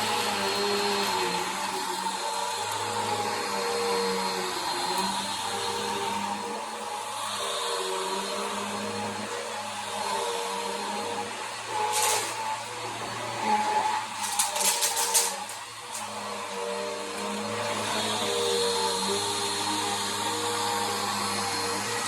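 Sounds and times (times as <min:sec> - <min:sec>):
vacuum cleaner running: 0:00.0 - 0:22.0
debris clicking and rattling: 0:14.2 - 0:15.6.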